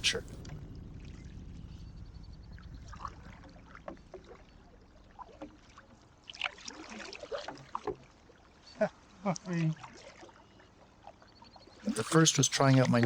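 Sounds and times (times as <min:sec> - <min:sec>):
low rumble: 0:00.0 - 0:05.2
paddle strokes and splashes: 0:03.0 - 0:13.0.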